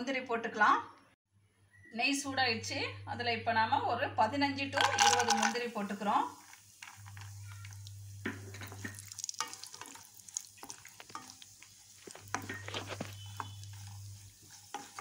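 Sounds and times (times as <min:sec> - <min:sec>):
nuts sizzling in a pan: 0:04.8 - 0:15.0
wooden spatula scraping and tapping: 0:06.4 - 0:15.0.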